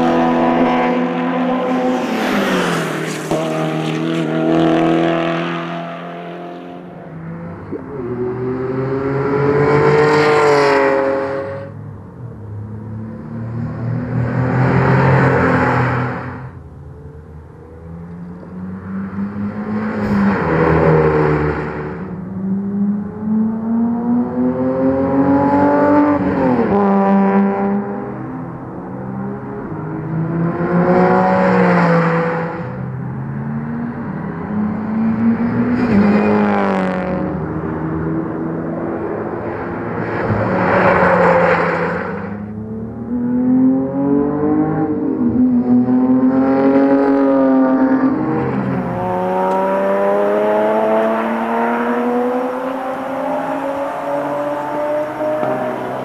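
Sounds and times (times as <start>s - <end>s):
car engine accelerating: 34.6s - 56.0s.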